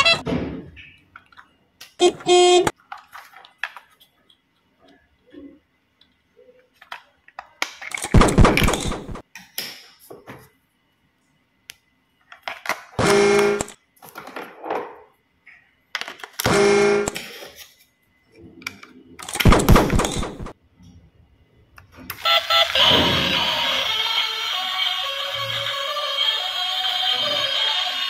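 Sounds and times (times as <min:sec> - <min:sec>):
short horn toot: 0:02.0 - 0:02.7.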